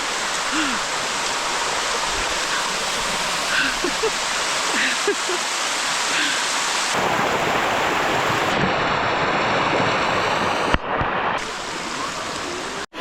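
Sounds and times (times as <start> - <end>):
waterfall rushing over rocks: 0.0 - 13.0.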